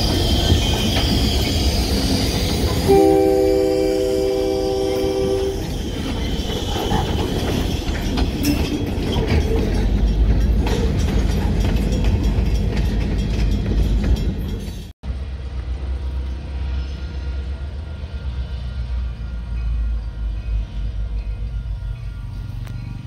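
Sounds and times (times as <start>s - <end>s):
rumble of wheels on rail: 0.0s - 23.0s
locomotive horn chord: 2.9s - 5.7s
wheels clicking over rail joints: 5.6s - 14.9s.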